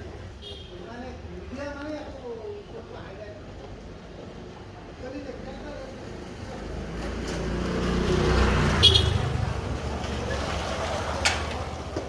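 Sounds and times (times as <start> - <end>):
vehicle passing: 6.0 - 12.0.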